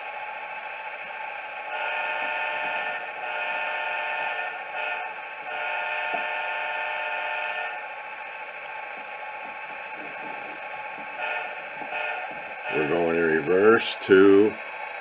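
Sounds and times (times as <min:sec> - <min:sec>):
diesel engine sound: 0:00.0 - 0:15.0
multi-tone air horn blasts: 0:01.7 - 0:07.8, 0:11.2 - 0:13.1.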